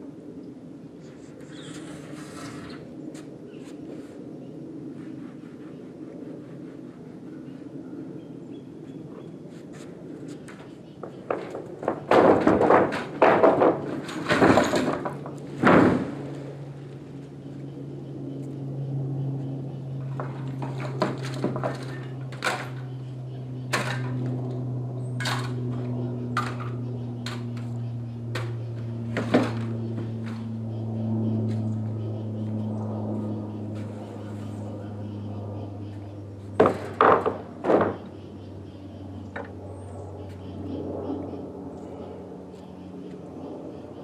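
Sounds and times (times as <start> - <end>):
steady low hum: 0.0 - 44.0
heavy thunks and knocks: 11.3 - 16.2.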